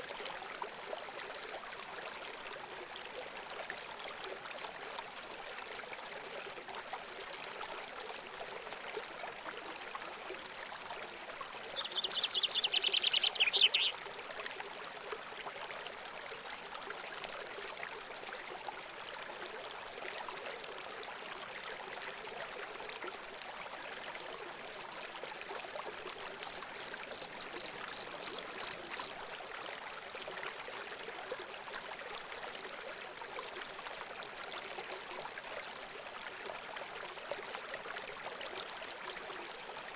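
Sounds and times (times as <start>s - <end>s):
birds singing: 11.7s - 13.9s, 26.1s - 29.1s.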